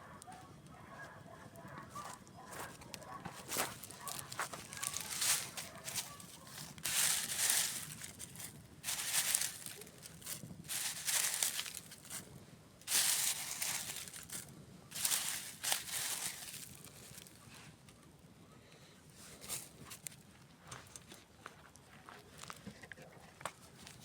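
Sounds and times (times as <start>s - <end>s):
rustling: 2.0s - 17.7s, 19.2s - 20.2s, 23.6s - 24.0s
campfire crackling: 2.6s - 17.4s.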